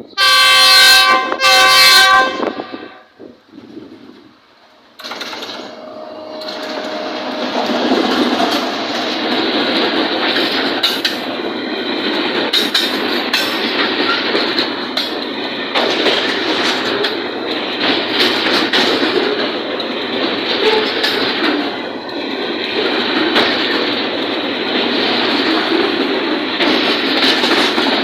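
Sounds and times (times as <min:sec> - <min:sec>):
train wheels clattering over rail joints: 0:03.4 - 0:28.0.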